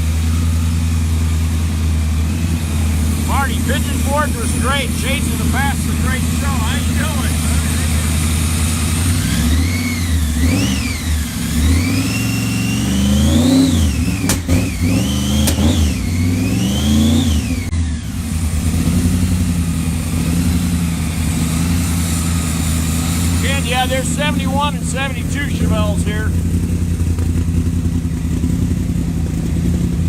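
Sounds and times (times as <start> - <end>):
car engine idling and revving: 0.0 - 30.0
sharp clicks: 15.4 - 15.7.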